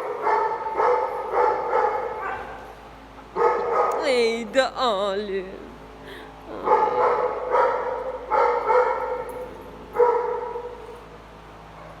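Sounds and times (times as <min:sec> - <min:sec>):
dog barking: 0:00.0 - 0:02.7, 0:03.4 - 0:04.0, 0:06.6 - 0:10.9.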